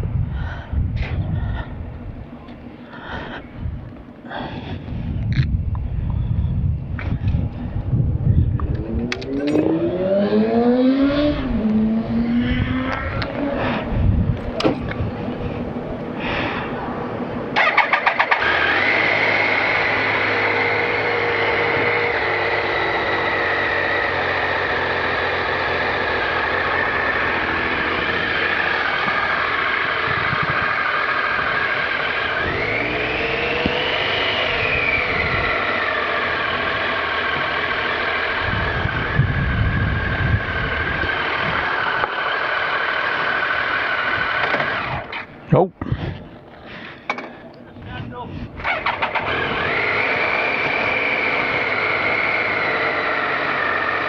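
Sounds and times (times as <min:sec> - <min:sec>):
engine revving: 0:08.2 - 0:45.5, 0:48.6 - 0:54.0.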